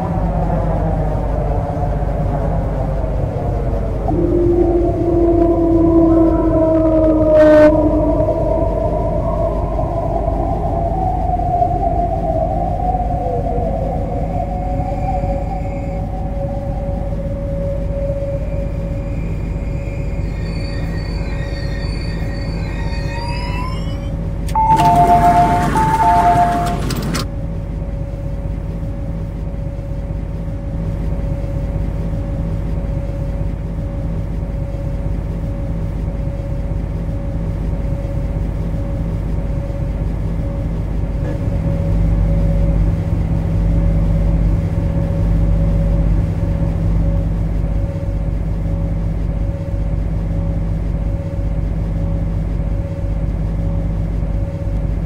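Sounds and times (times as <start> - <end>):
deep rumble: 0.0 - 55.0
train drive whine: 0.0 - 55.0
two-tone beep: 23.2 - 27.2.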